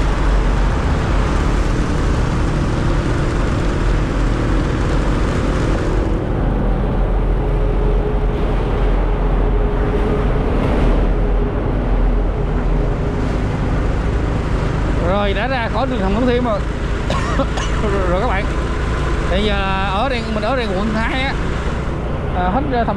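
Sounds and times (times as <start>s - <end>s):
wind rumble on microphone: 0.0s - 17.0s
motorcycle engine hum: 0.0s - 22.9s
traffic noise in tunnel: 0.0s - 22.9s.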